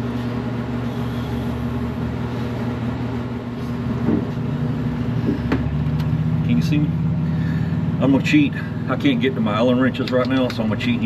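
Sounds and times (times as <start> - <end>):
electric motor humming: 0.0 - 8.0.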